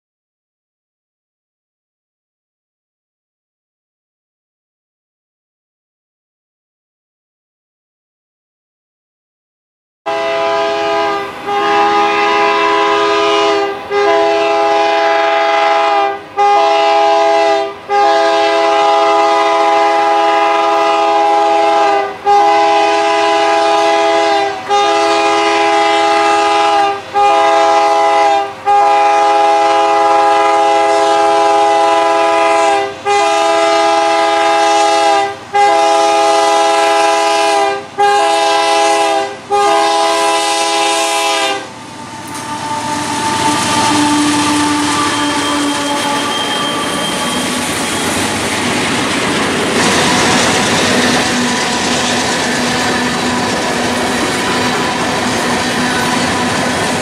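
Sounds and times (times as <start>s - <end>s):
locomotive air horn blasts: 10.1s - 48.3s, 49.8s - 57.0s.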